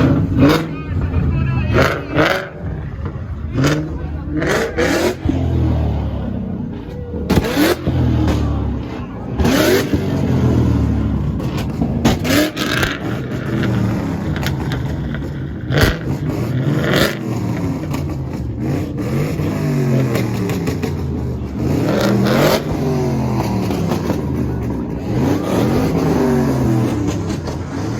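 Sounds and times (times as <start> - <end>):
car engine revving: 0.0 - 27.9
exhaust pops and bangs: 6.8 - 10.5, 11.2 - 27.9.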